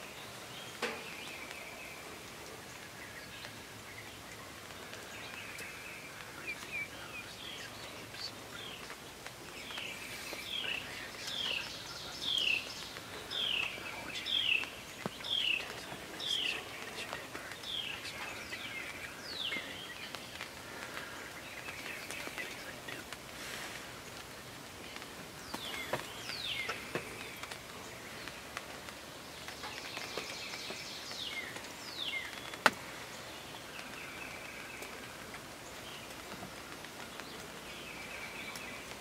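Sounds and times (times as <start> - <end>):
faint bird chirps: 0.0 - 28.6.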